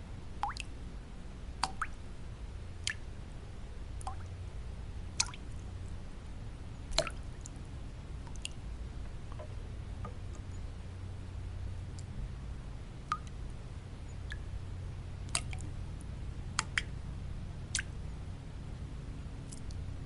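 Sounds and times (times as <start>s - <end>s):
low rumbling white noise: 0.0s - 20.0s
water drops plinking: 0.4s - 0.7s, 1.6s - 2.0s, 6.9s - 7.2s.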